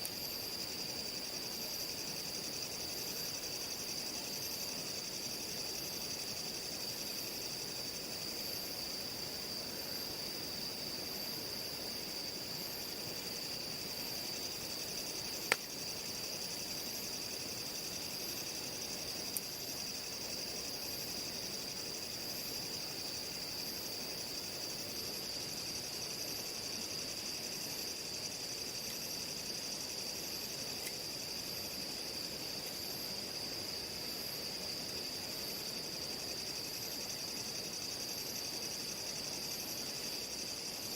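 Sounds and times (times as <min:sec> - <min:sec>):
crickets trilling: 0:00.0 - 0:40.9
sharp snaps: 0:15.5 - 0:15.7.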